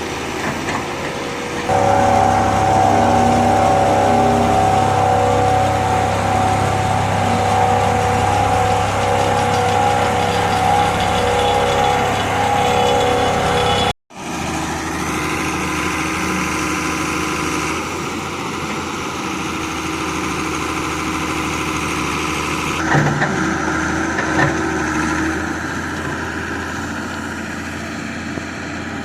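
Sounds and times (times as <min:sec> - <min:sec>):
quieter engine running: 0:00.0 - 0:18.6
diesel engine running: 0:00.0 - 0:29.0.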